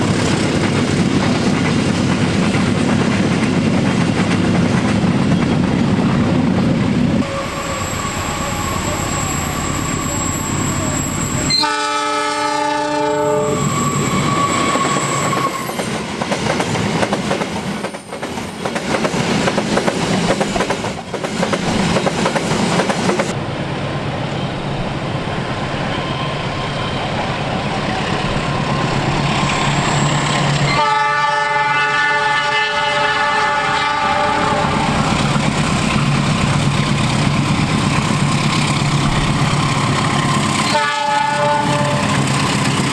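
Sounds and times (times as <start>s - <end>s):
train rumbling and clattering: 0.0s - 31.0s, 32.8s - 42.9s
train horn blasts: 7.2s - 15.8s, 30.7s - 35.0s, 40.6s - 42.3s.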